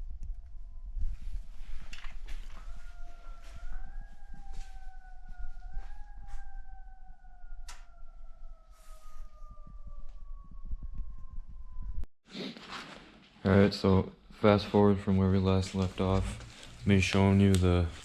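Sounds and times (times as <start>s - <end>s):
low rumble: 0.0s - 12.1s
siren wailing: 0.0s - 12.1s, 15.7s - 18.0s
clicks: 7.7s - 7.9s.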